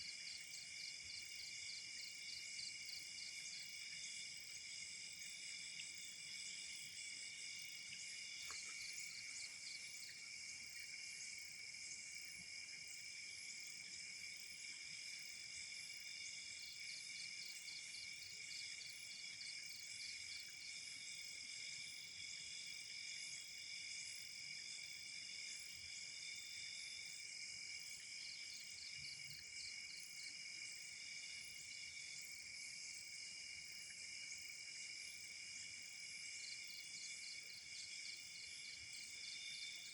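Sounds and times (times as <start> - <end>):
crickets trilling: 0.3 - 12.9.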